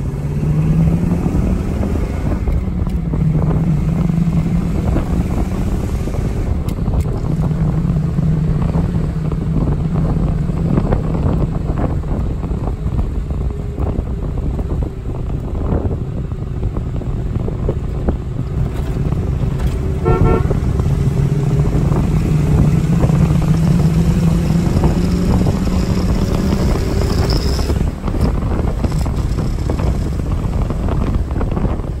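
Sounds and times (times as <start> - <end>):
car engine running: 0.0 - 32.0
road noise: 0.0 - 32.0
wind: 0.0 - 32.0
short tooting tone: 20.0 - 20.6.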